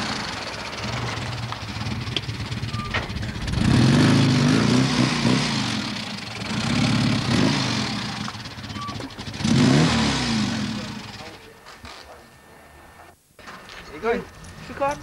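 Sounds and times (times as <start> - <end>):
car engine idling and revving: 0.0 - 11.6.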